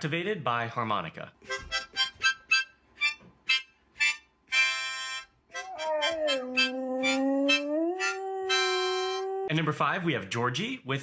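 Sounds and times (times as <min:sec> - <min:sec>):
harmonica playing: 0:01.5 - 0:09.5
dog howling: 0:05.6 - 0:09.5.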